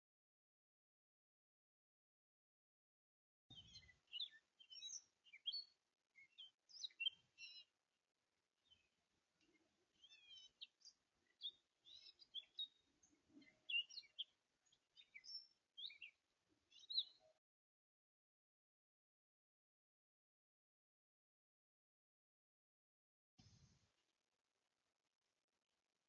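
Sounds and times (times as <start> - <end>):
songbirds chirping: 3.5 - 17.4.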